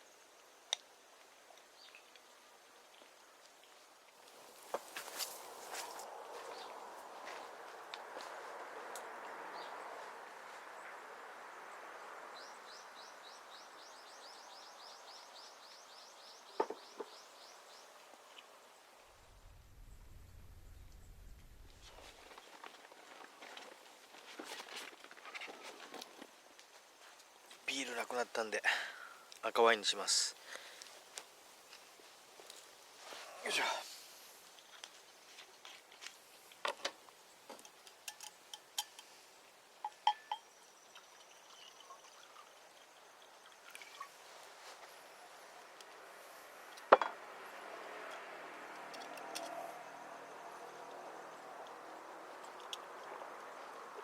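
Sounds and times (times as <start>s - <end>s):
outdoor background noise: 0.0s - 54.0s
glass clinks: 39.8s - 40.6s.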